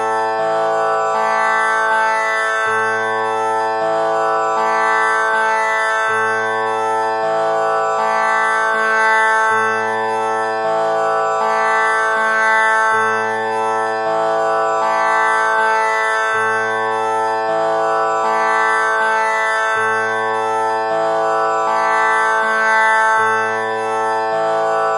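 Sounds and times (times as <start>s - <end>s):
tanpura drone plucked strings: 0.7s - 3.6s, 11.0s - 13.8s, 14.4s - 24.9s.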